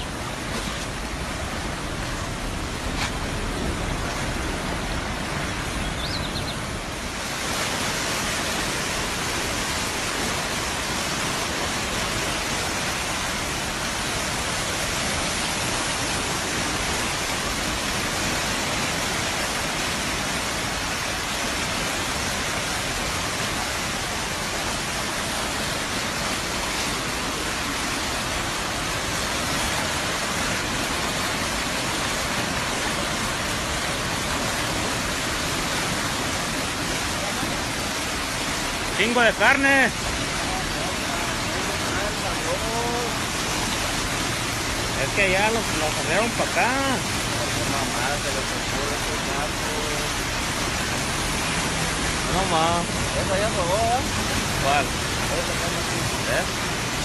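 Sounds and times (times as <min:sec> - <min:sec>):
rushing floodwater roar: 0:00.0 - 0:57.0.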